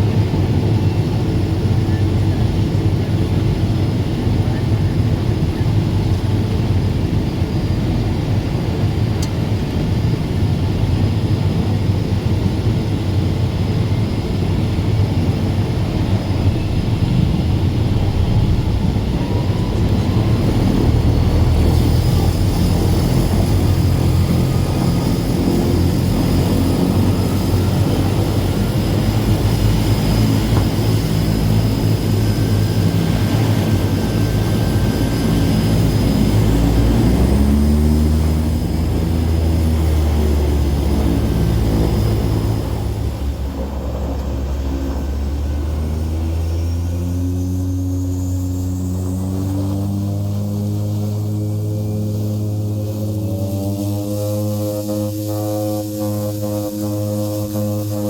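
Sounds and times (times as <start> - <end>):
turboprop engines droning: 0.0 - 58.0
high whine: 14.1 - 58.0.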